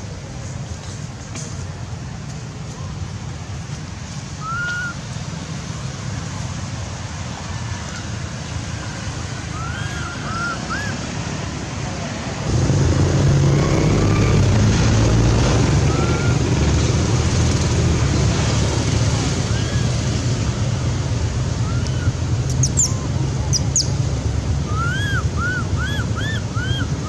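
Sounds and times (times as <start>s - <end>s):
outdoor rumble: 8.7s - 27.0s.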